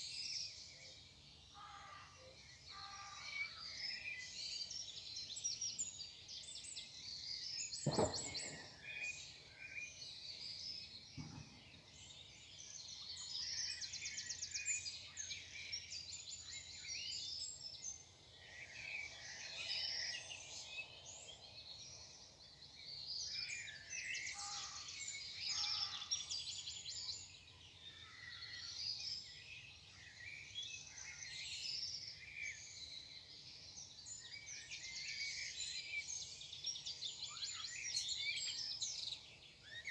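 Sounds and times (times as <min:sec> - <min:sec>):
songbirds singing: 0:00.0 - 0:39.9
sharp knock: 0:07.9 - 0:08.7.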